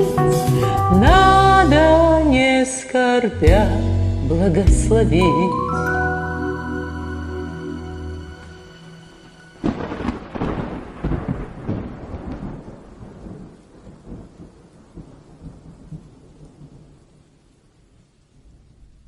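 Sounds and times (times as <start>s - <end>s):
rain hiss: 0.0s - 19.0s
thunder crack and rumbles: 9.6s - 17.3s.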